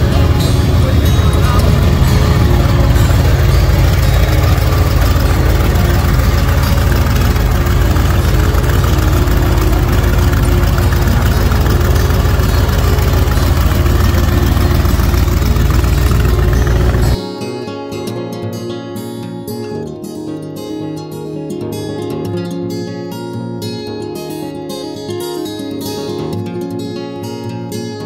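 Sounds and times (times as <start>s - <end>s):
car engine idling: 0.0s - 17.2s.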